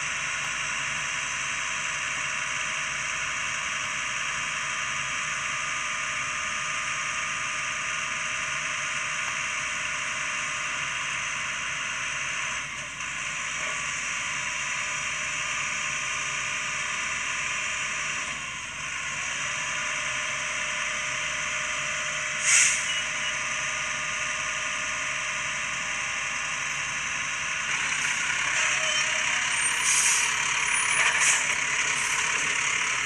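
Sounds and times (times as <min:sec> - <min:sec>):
garbage truck running: 0:00.0 - 0:33.0
air brakes hissing: 0:22.2 - 0:23.4, 0:27.7 - 0:33.0.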